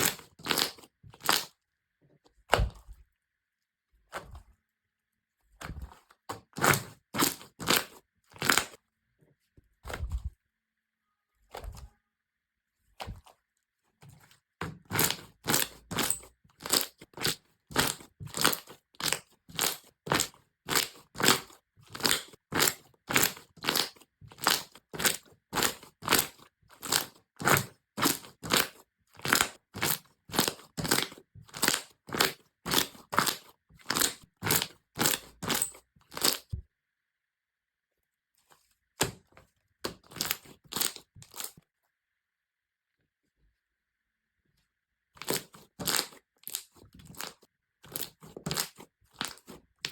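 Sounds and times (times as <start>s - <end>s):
crunchy slime crackling: 0.0s - 1.6s, 5.7s - 8.8s, 14.8s - 36.6s, 40.0s - 41.6s, 45.2s - 49.9s.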